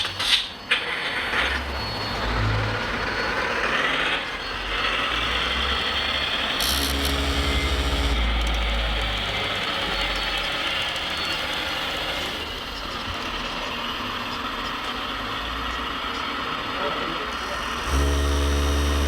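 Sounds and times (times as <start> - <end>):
hydraulic pump running: 0.0 - 19.0
small electric motors whirring: 1.4 - 19.0
sharp clicks: 6.5 - 9.5.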